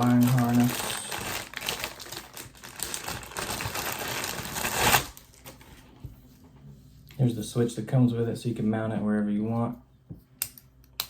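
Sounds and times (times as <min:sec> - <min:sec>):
plastic packaging crinkling: 0:00.0 - 0:05.7.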